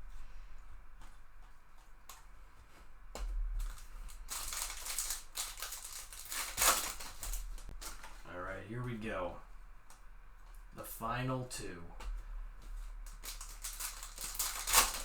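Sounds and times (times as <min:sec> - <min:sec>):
card pack wrappers crinkling: 0:03.6 - 0:08.3, 0:12.7 - 0:15.0.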